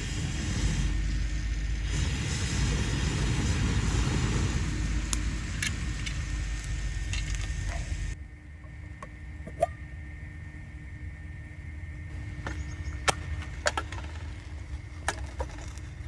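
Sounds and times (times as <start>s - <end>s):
fire crackles and pops: 0.0s - 8.2s, 12.1s - 16.0s
fire rushing noise: 0.0s - 8.2s.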